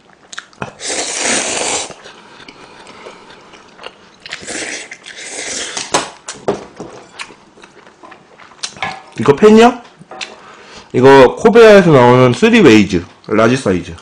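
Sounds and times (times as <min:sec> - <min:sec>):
chewing with wet mouth sounds: 0:00.0 - 0:00.8, 0:01.6 - 0:06.4, 0:07.1 - 0:09.2.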